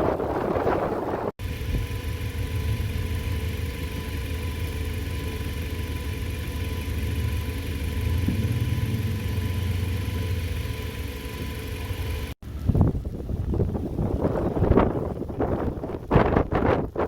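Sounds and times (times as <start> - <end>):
wind buffeting microphone: 0.0 - 2.0, 12.4 - 17.0
vehicle engine rumble: 0.0 - 17.0.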